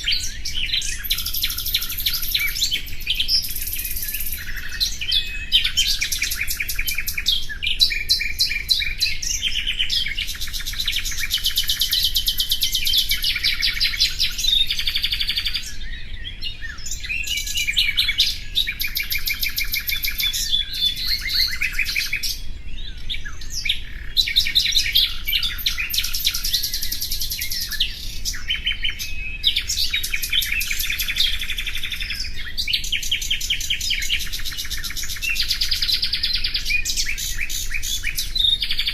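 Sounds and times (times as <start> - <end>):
nightingale singing trills: 0.0 - 38.9.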